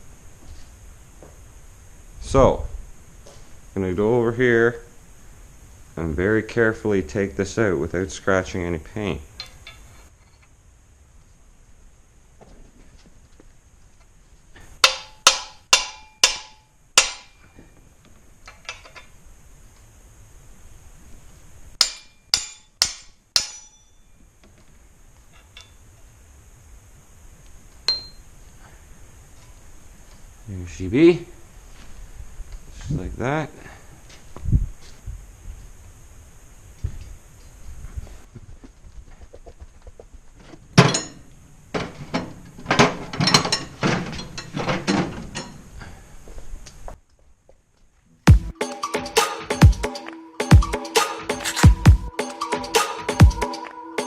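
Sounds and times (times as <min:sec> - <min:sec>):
hand tools knocking on metal: 0:14.8 - 0:17.4
hammer on metal ringing: 0:14.8 - 0:17.5, 0:21.8 - 0:24.0
light ringing tap: 0:27.9 - 0:28.2.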